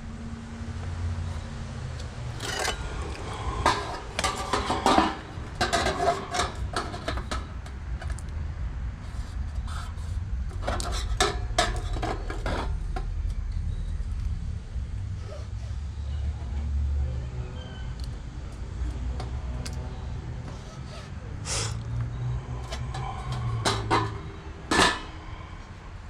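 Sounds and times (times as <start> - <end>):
sheet metal clanking and scraping: 2.1 - 8.2, 10.5 - 13.2, 22.2 - 25.8.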